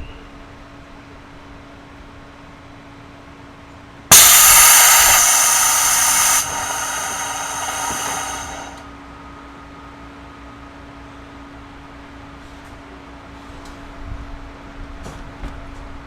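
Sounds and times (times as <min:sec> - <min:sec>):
compressed air hissing: 0:04.1 - 0:08.8.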